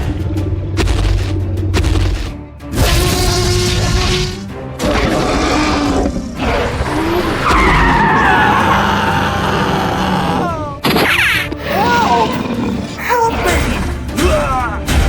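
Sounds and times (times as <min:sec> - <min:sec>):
background music: 0:00.0 - 0:15.0
tyres skidding: 0:03.7 - 0:15.0
cartoon vehicle sound effects: 0:06.4 - 0:12.4.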